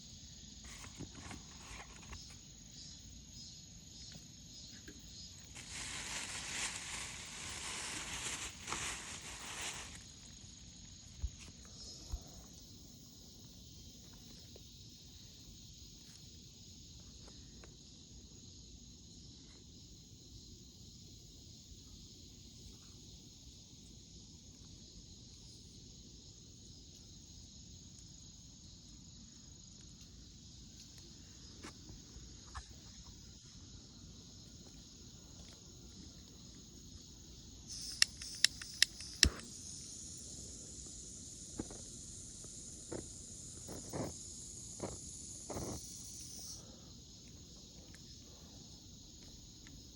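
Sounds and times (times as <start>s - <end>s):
insects chorus: 0.0s - 49.9s
sharp clicks: 37.7s - 39.5s.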